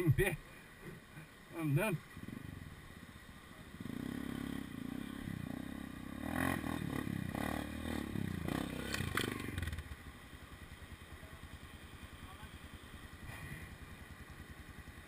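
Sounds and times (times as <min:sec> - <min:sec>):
dirt bike engine revving: 0:03.7 - 0:10.1.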